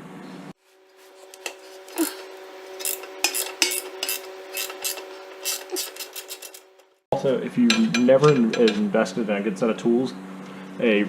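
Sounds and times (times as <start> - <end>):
faint steady hum: 0.0 - 11.0
wrench clicking and scraping metal: 1.2 - 6.9.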